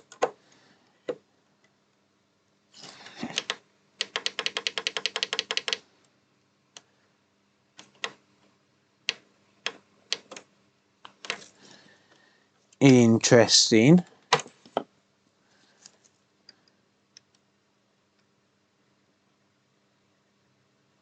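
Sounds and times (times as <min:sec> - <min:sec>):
typing on computer keyboard: 0:00.0 - 0:00.4, 0:03.2 - 0:05.8, 0:07.8 - 0:08.2, 0:09.1 - 0:10.5, 0:11.1 - 0:11.5.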